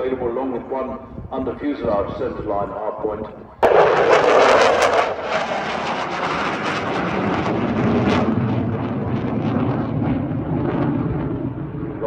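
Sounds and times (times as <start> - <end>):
fighter jet engine roaring: 3.4 - 12.0.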